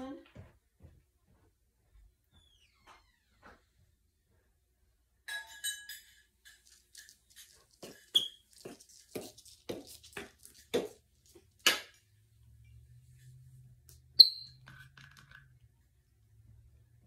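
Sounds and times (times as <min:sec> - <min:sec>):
light taps and clinks: 0:05.3 - 0:12.0
brief squeak: 0:14.2 - 0:14.6.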